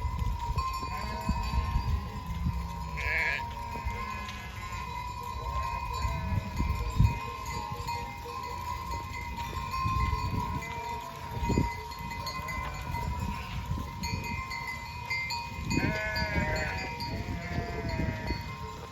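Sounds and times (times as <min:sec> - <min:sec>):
livestock neck bells ringing: 0:00.0 - 0:18.9
sheep bleating: 0:00.9 - 0:01.9, 0:02.8 - 0:04.8, 0:15.8 - 0:18.5.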